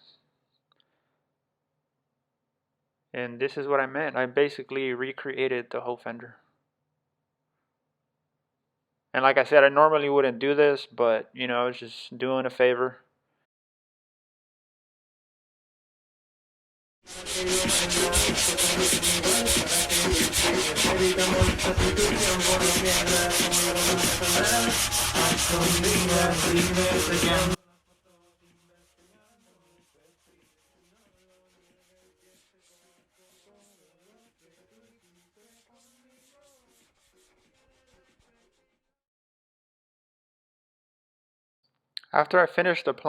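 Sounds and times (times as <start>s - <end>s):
rubbing strokes on car body filler: 17.1s - 38.8s.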